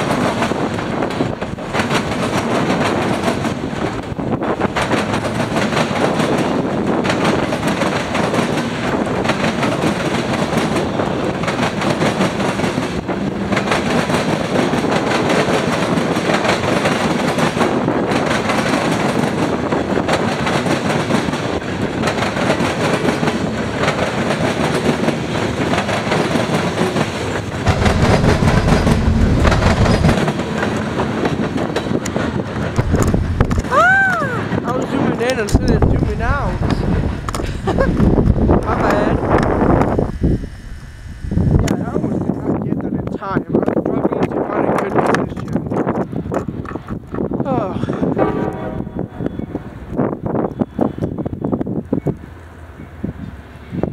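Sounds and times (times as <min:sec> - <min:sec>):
train wheels clacking: 0:00.0 - 0:39.9
freight train rumbling: 0:00.0 - 0:53.9.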